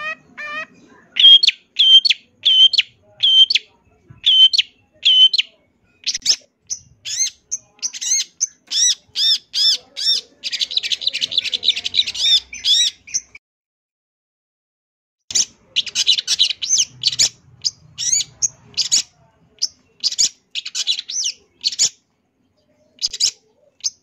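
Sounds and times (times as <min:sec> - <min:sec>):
shrike singing: 0:00.0 - 0:13.4.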